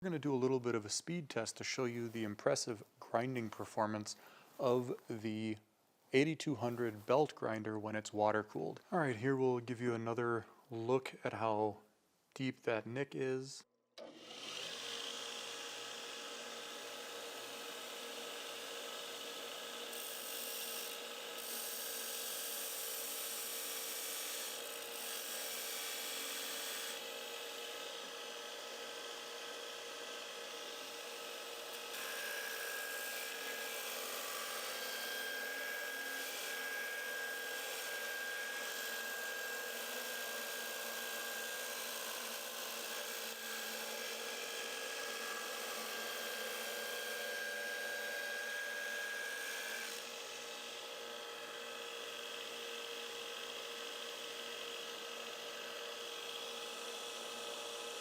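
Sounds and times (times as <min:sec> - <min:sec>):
belt grinder grinding steel: 0:14.0 - 0:58.0.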